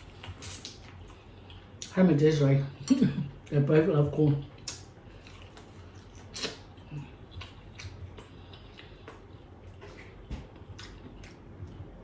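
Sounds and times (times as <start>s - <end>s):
person chewing wet smacks: 4.4s - 11.9s.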